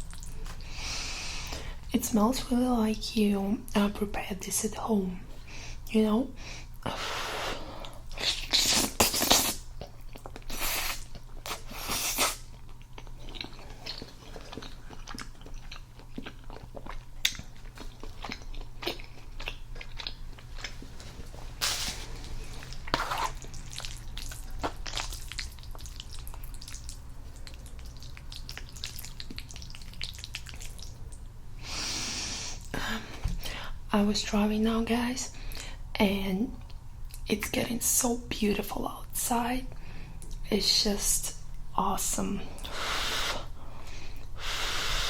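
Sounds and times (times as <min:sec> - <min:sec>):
wet chewing: 0:00.0 - 0:00.8, 0:07.8 - 0:31.3
mouth clicks and smacks: 0:23.0 - 0:31.2.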